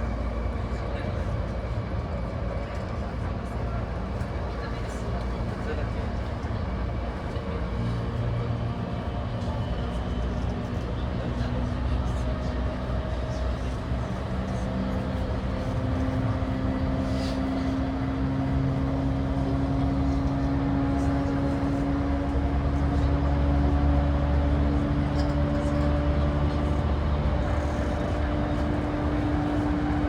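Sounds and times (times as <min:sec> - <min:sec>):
wheel and rail rumble: 0:00.0 - 0:30.0
train traction motor hum: 0:12.6 - 0:30.0.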